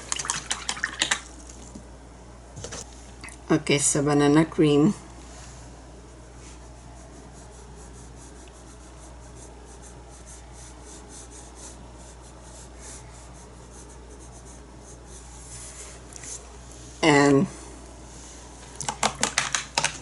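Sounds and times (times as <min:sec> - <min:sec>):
steady low hum: 0:00.0 - 0:19.0
paintbrush scratchy brushing: 0:05.3 - 0:17.1.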